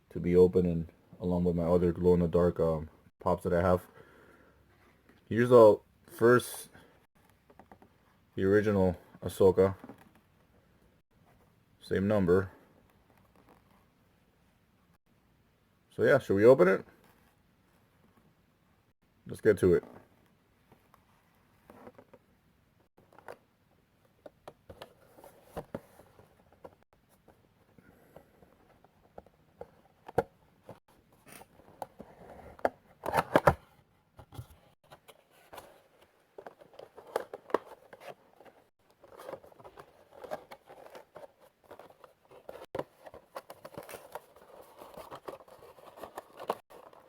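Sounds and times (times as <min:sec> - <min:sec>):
packaging scraping and tearing: 0:39.0 - 0:47.0.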